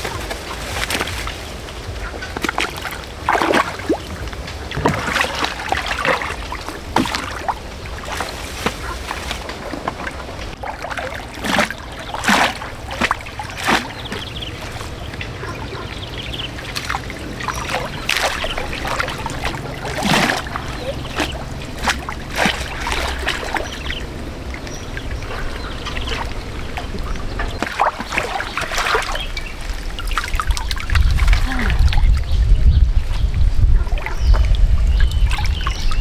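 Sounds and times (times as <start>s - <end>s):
water splashing and trickling: 0.0s - 36.0s.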